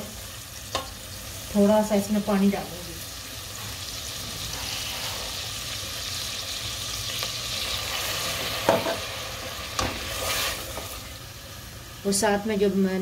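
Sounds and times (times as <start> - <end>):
vegetables sizzling in butter: 0.0 - 13.0.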